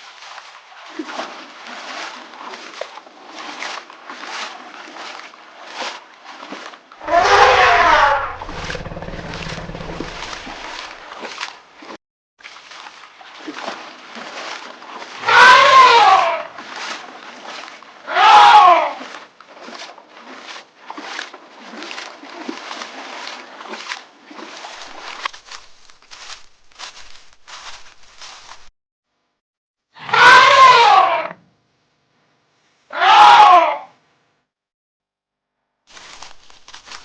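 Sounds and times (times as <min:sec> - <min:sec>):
elephant calf crying: 0:07.0 - 0:10.4, 0:15.2 - 0:16.5, 0:18.1 - 0:19.0, 0:30.0 - 0:31.4, 0:32.9 - 0:33.9.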